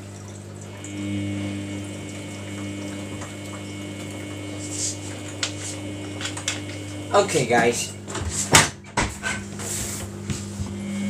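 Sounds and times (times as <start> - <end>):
pump whine: 0.0 - 11.0
washing machine humming: 0.0 - 11.0.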